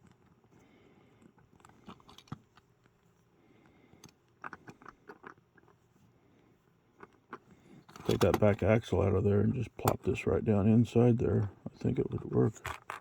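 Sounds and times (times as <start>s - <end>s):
plastic parts clicking and tapping: 7.0s - 8.8s.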